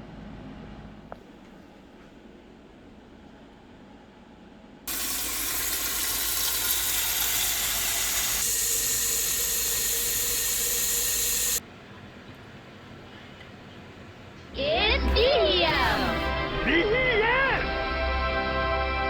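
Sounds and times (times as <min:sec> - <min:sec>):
loud steady hiss: 0:04.9 - 0:11.7.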